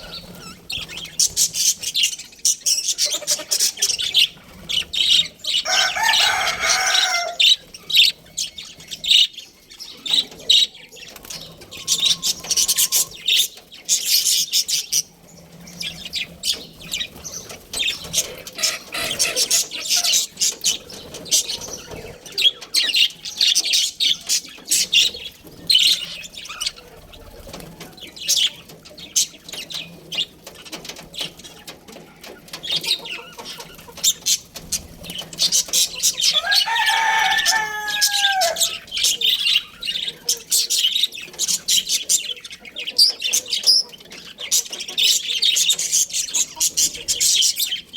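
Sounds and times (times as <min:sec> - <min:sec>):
budgerigars chirping and chattering: 0:00.0 - 0:47.9.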